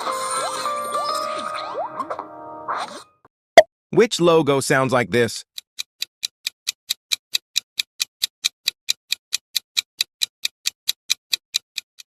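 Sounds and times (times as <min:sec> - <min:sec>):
clock ticking: 0:05.4 - 0:12.0.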